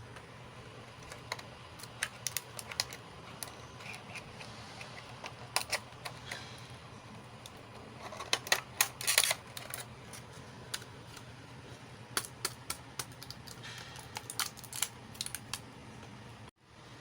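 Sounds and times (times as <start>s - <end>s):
plastic toy pieces clicking: 1.0s - 4.2s, 12.2s - 15.6s.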